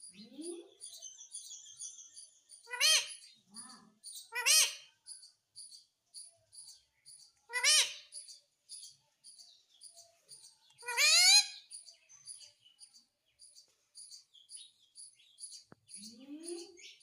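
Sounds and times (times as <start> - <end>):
parakeet squawk: 4.3 - 4.9, 7.5 - 8.1, 10.8 - 11.6.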